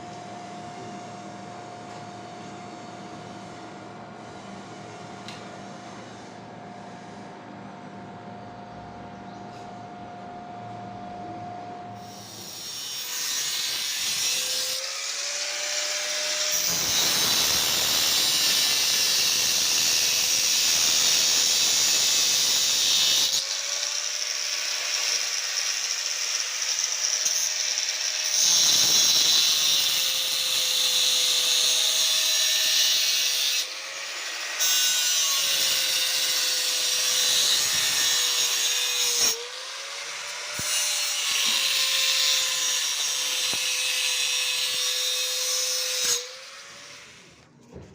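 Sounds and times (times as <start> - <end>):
handheld power tool running: 12.1 - 34.7.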